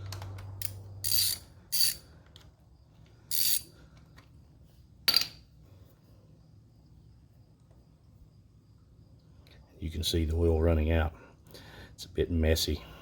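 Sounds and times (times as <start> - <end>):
socket ratchet clicking: 0.0 - 2.5.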